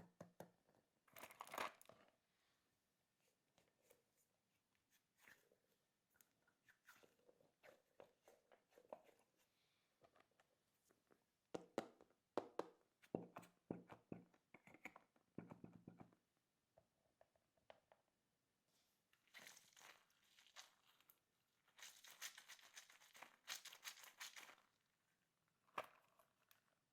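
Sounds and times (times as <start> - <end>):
hands squishing candy in plastic tub: 19.2 - 26.9.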